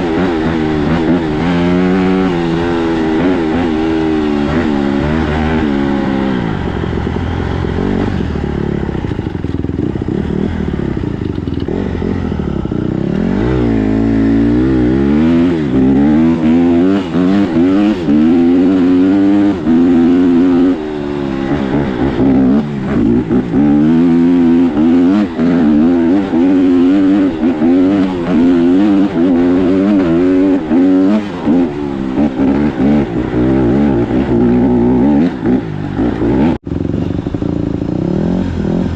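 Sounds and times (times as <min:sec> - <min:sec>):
riding clatter: 0:00.0 - 0:14.4
dirt bike engine revving: 0:00.0 - 0:38.9
wind: 0:00.0 - 0:38.9.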